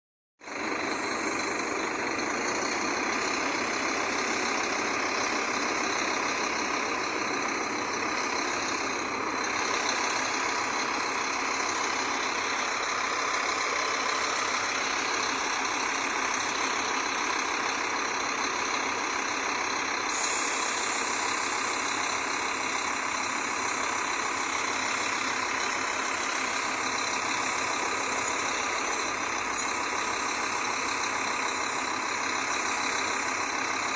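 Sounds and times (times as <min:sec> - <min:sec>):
bus engine running: 0:00.4 - 0:33.9
higher hiss: 0:20.1 - 0:22.0.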